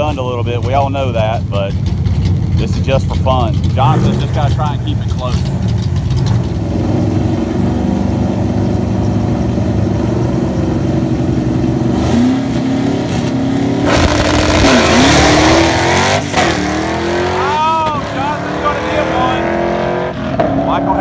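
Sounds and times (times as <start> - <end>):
drag car engines revving: 0.0 - 21.0
loud rush of noise: 6.3 - 20.0.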